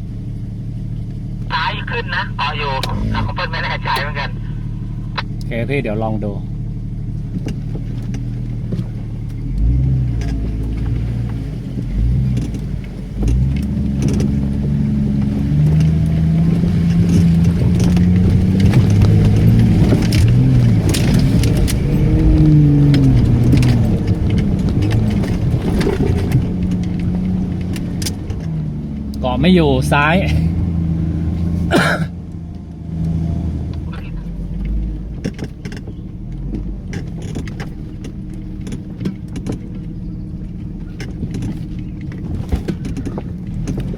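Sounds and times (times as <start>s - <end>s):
off-road vehicle engine revving: 0.0s - 43.9s
sharp clicks and knocks: 34.6s - 43.9s.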